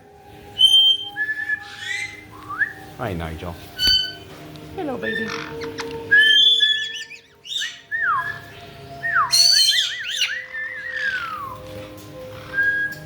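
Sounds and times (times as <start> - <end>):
parrots whistling and calling: 0.2 - 3.0, 3.6 - 13.0
parrot squawk: 5.0 - 8.0, 9.3 - 11.6.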